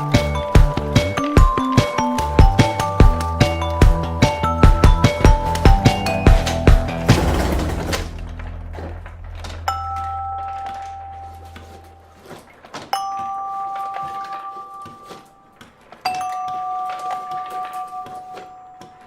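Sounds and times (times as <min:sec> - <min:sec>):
two-note bell chime: 0:09.7 - 0:12.1, 0:13.0 - 0:15.4.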